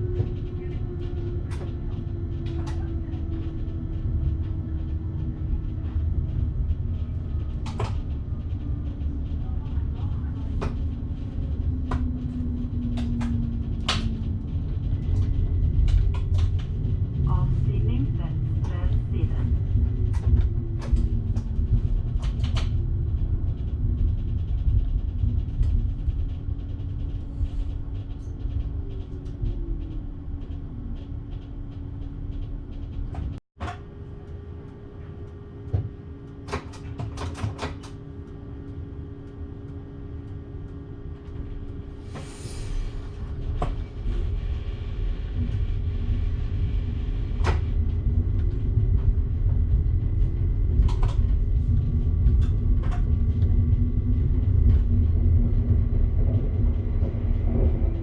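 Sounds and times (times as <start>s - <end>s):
train motor hum: 0.0s - 36.8s
train rumbling on rails: 0.0s - 58.0s.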